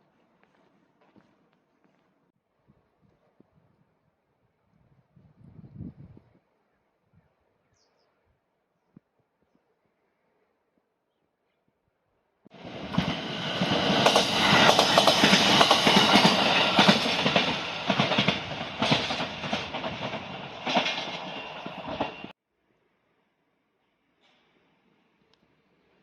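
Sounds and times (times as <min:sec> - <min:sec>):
train wheels clacking on rails: 0:12.5 - 0:22.3.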